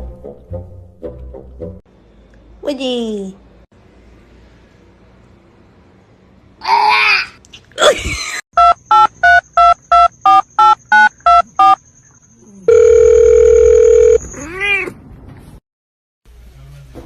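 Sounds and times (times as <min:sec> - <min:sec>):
telephone keypad beeps: 0:08.6 - 0:11.8, 0:12.7 - 0:14.2
steady telephone tone: 0:12.7 - 0:14.2
cat meowing: 0:14.4 - 0:15.0.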